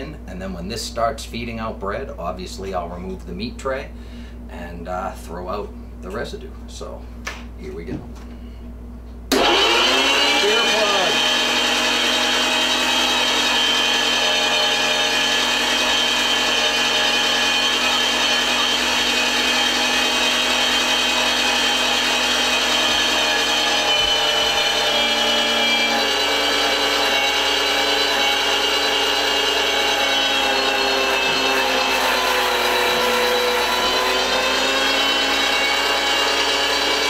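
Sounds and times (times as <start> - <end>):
electric meat grinder running: 9.3 - 37.0.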